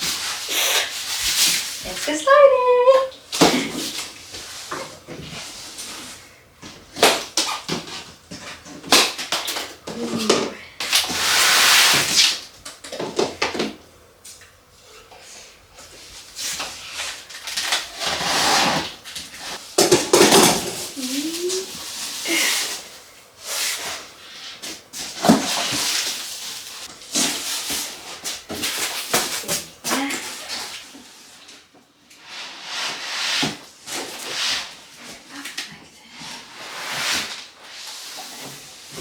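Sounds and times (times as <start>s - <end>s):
cardboard and plastic rustling: 16.2s - 31.6s.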